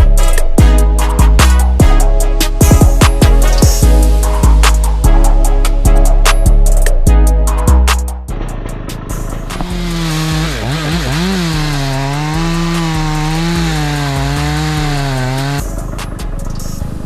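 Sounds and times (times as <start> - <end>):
background music with bass: 0.0 - 17.0
chainsaw cutting wood: 8.3 - 15.8.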